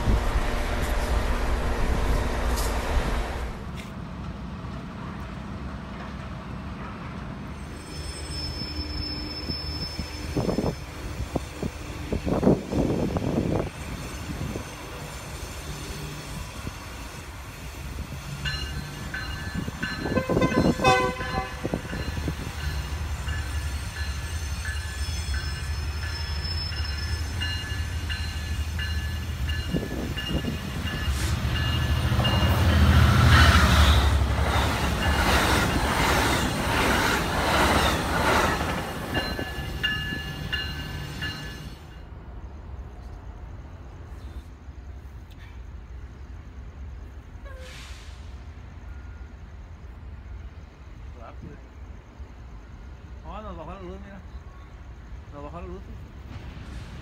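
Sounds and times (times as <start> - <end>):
freight train rumbling by: 0.0 - 57.0
train horn: 20.0 - 22.1, 47.4 - 48.0.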